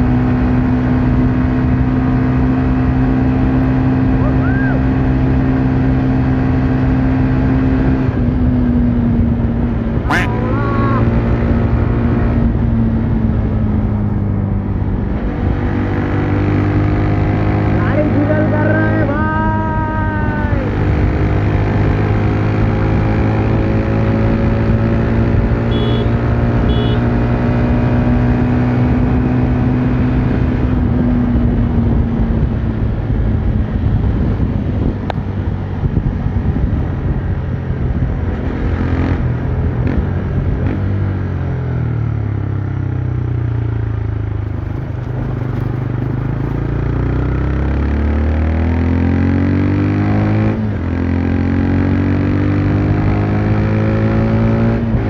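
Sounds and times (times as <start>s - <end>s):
motorcycle engine and exhaust: 0.0s - 55.0s
wind over microphone: 27.6s - 41.7s, 44.4s - 47.5s.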